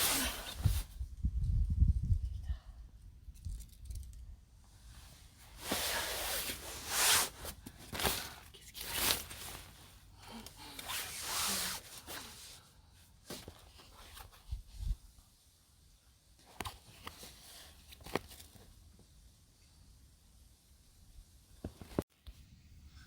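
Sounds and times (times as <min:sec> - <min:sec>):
rustling and scraping: 0:00.0 - 0:01.1, 0:03.4 - 0:15.0, 0:16.4 - 0:18.7.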